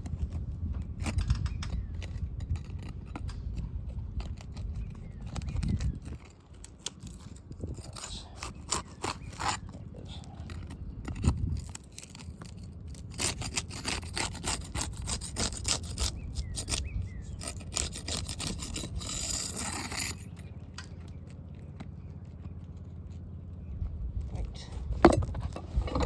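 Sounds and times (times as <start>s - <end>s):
roof shingles being scraped: 1.8s - 20.4s.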